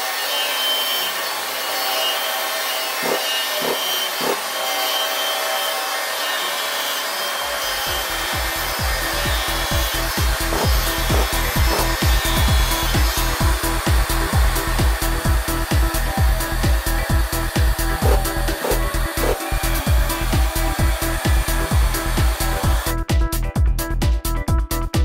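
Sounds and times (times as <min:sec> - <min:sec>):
router cutting wood: 0:00.0 - 0:23.0
low pulsing thumping: 0:08.2 - 0:22.9.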